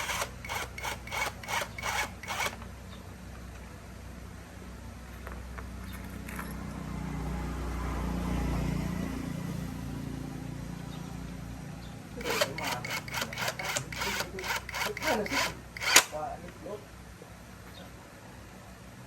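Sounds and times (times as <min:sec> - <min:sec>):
hand tool scraping workpiece: 0:12.2 - 0:16.2.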